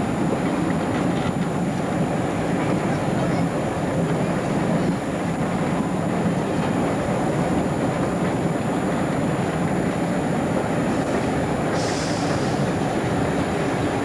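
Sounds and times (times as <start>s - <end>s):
diesel train engine: 0.0s - 14.0s
train wheels on track: 0.0s - 14.0s.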